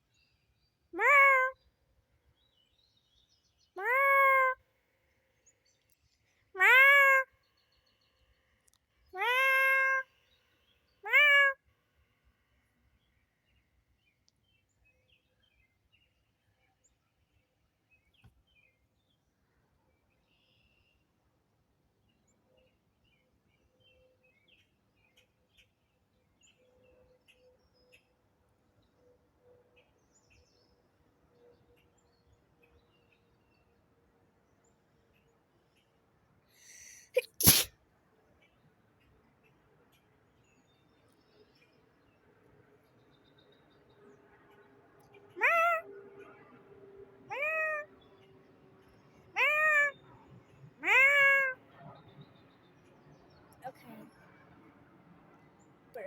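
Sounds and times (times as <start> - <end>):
cat meowing: 1.0 - 1.6, 3.8 - 4.6, 6.6 - 7.2, 9.2 - 10.0, 11.1 - 11.6, 45.4 - 45.8, 47.3 - 47.9, 49.4 - 50.0, 50.8 - 51.6.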